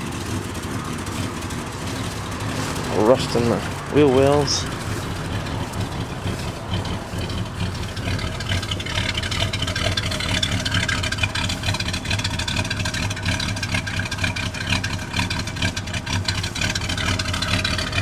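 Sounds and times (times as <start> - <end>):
pickup truck engine idling: 0.0 - 18.0.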